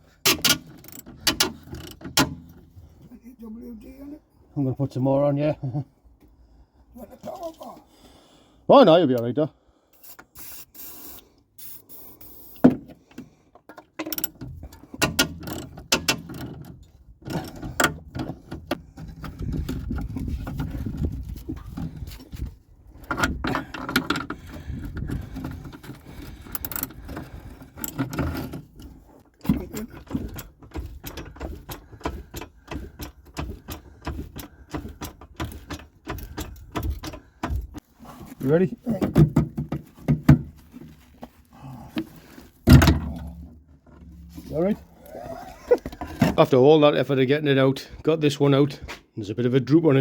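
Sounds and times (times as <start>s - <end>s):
metal clinks and knocks: 13.6s - 22.1s, 23.0s - 37.8s
scraping and rumbling: 18.4s - 34.6s.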